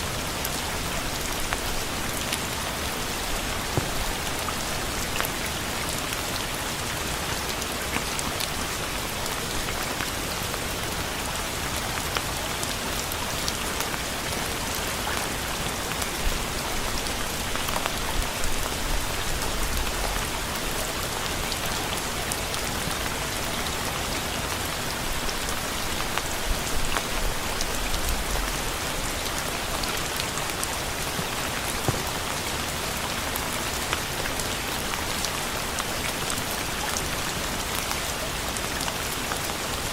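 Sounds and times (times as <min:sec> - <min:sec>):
steady rain hiss: 0:00.0 - 0:39.9
raindrops ticking: 0:03.0 - 0:07.2, 0:26.0 - 0:36.0.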